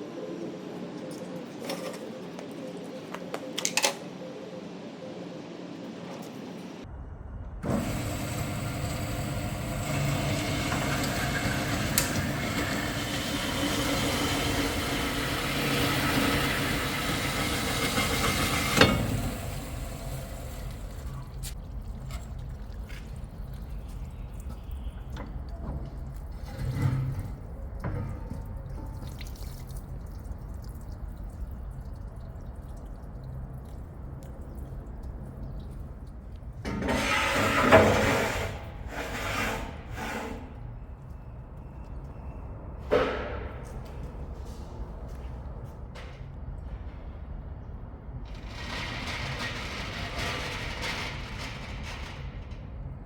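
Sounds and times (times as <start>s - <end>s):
workshop machinery running: 7.6s - 21.6s.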